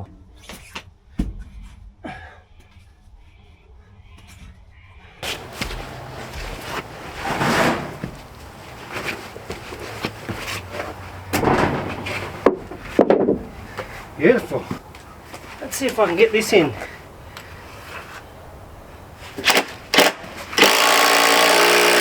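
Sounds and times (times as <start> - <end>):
wooden knocks and scraping: 5.2 - 16.2.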